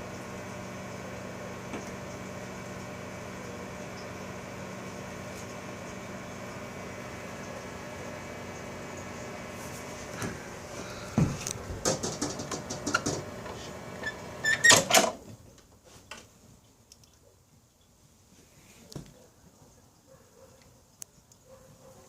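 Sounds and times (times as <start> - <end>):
microwave oven humming: 0.0 - 15.2
sharp clicks and knocks: 11.2 - 13.6.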